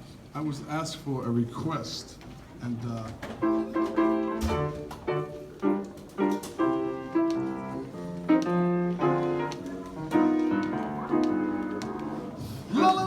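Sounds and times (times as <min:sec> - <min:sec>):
jazz piano chords and melody: 0:03.4 - 0:12.7.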